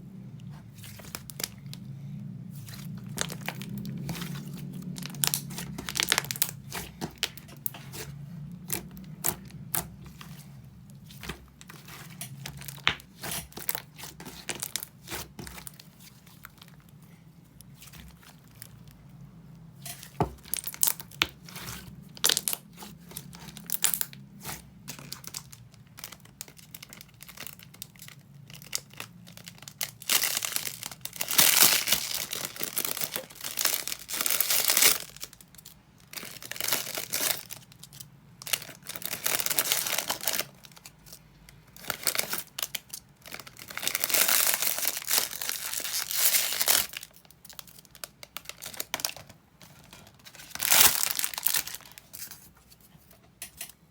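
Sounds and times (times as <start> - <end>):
crinkling and rustling: 0.4 - 53.9.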